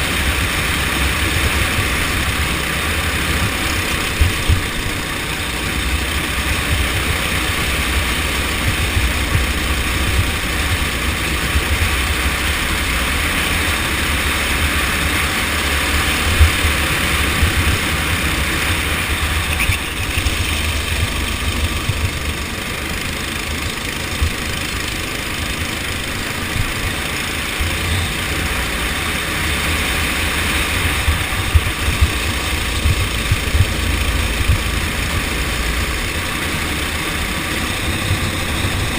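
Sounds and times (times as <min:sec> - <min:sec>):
go-kart engine running: 0:00.0 - 0:38.9
wind buffeting on microphone: 0:30.6 - 0:35.2.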